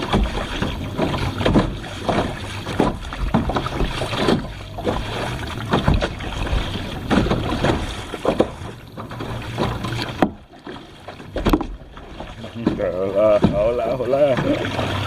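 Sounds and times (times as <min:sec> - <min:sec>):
paddle strokes splashing water: 0:00.0 - 0:15.0.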